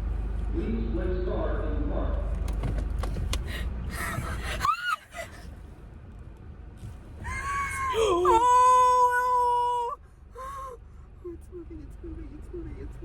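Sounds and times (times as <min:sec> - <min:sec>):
person squealing: 0:07.3 - 0:10.0.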